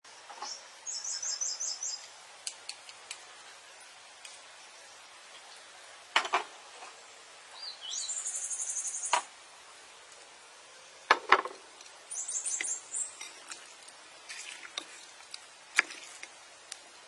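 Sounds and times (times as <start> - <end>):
small bird chirping: 0.3 - 2.1, 7.5 - 9.3, 12.1 - 13.3.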